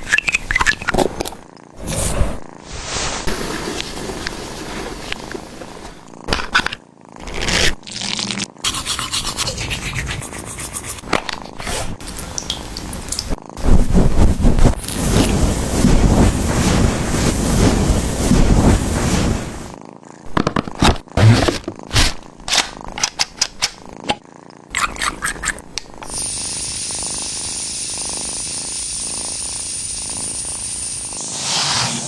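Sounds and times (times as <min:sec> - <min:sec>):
steady hiss: 0:11.9 - 0:24.0.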